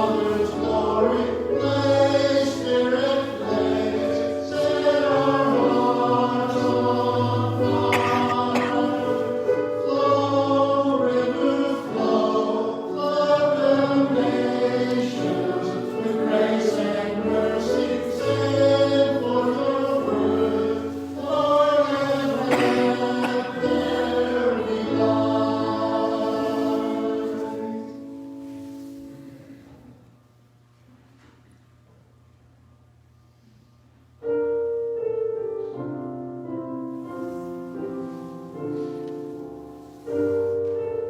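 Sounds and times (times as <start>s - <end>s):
choir singing sustained notes: 0.0s - 29.7s.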